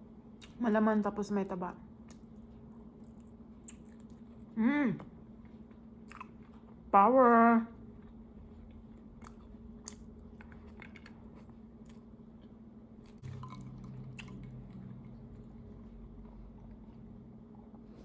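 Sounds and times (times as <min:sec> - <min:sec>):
low steady hum: 0:00.0 - 0:18.0
wet chewing sounds: 0:02.0 - 0:06.8, 0:07.9 - 0:17.1.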